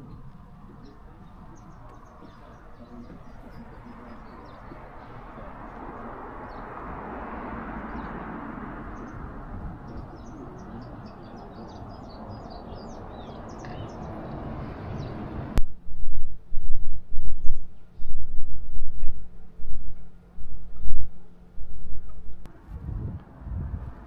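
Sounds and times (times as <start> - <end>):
small birds chirping: 0.0 - 6.9, 7.8 - 15.3
steady rushing noise: 14.1 - 24.0.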